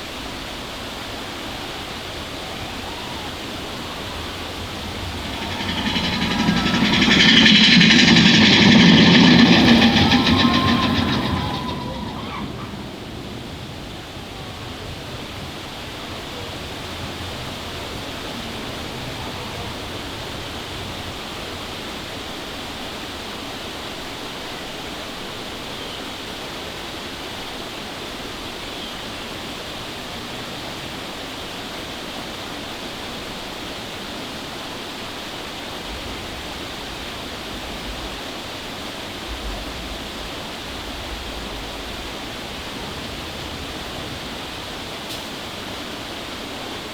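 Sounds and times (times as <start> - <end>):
falling water rushing: 0.0 - 18.9
faint low rumble: 1.5 - 15.8.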